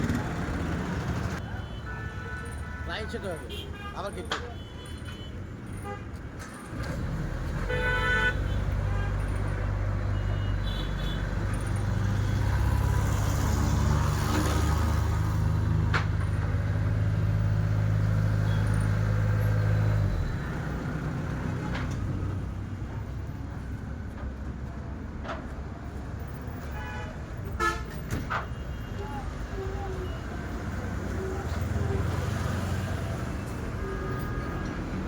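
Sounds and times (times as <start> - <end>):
heavy engine running: 0.0 - 1.4.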